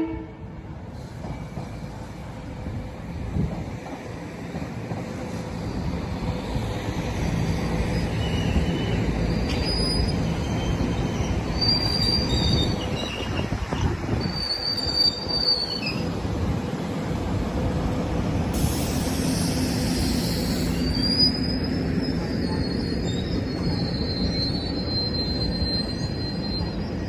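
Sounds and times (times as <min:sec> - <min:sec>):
train wheels rumbling on rails: 0:00.3 - 0:27.0
high-pitched wheel squeals: 0:07.9 - 0:16.1, 0:19.4 - 0:27.0.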